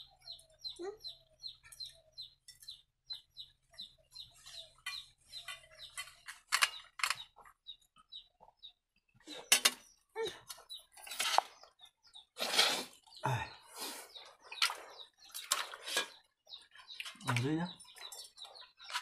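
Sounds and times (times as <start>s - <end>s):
birds peeping: 0.0s - 19.0s
rustling or scraping: 11.0s - 11.7s, 12.4s - 13.0s.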